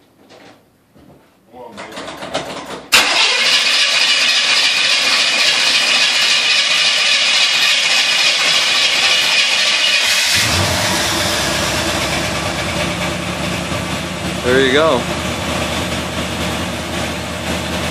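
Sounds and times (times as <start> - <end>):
car engine starting: 2.9 - 17.9
engine low rumble: 4.3 - 17.9.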